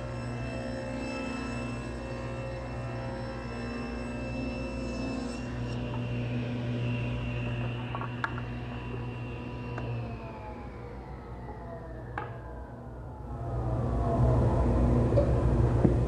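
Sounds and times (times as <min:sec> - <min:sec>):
table saw running: 0:00.0 - 0:12.8.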